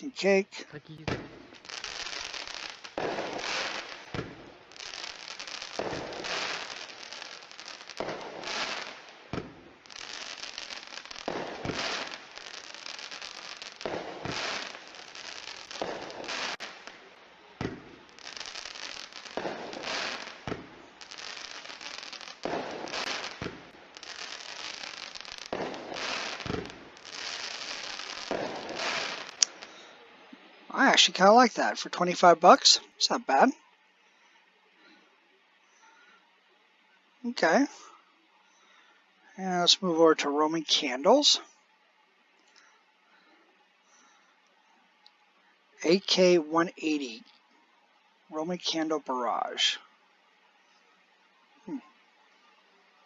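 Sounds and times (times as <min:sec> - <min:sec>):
firework crackling bursts: 0:00.0 - 0:33.6, 0:39.3 - 0:41.6, 0:44.9 - 0:50.8, 0:51.5 - 0:52.8
firework launch thumps: 0:01.0 - 0:01.7, 0:02.3 - 0:04.6, 0:05.8 - 0:06.8, 0:08.0 - 0:09.6, 0:11.2 - 0:12.2, 0:13.8 - 0:14.8, 0:15.8 - 0:16.9, 0:17.6 - 0:18.0, 0:19.3 - 0:21.4, 0:22.0 - 0:23.7, 0:24.6 - 0:29.7.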